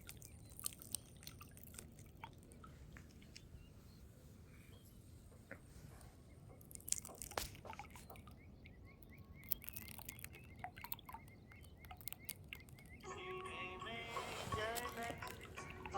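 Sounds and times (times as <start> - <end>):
water trickling and dripping: 0.0 - 3.7, 6.5 - 13.4, 14.4 - 15.9
music: 13.0 - 15.9.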